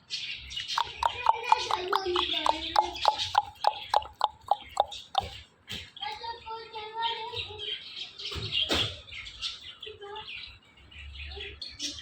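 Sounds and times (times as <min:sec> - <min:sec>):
parrot chattering in short chirps: 0:00.6 - 0:05.3.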